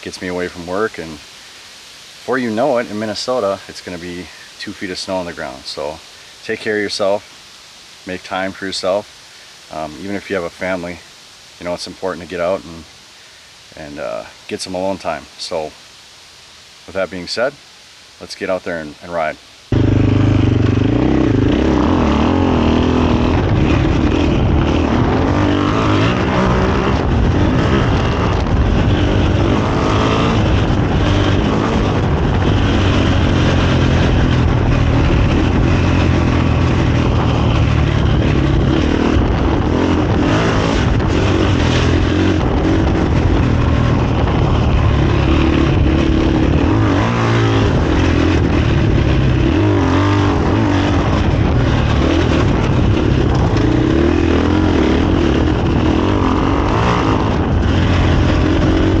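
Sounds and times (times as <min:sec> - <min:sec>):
dirt bike engine revving: 0:19.7 - 0:59.0.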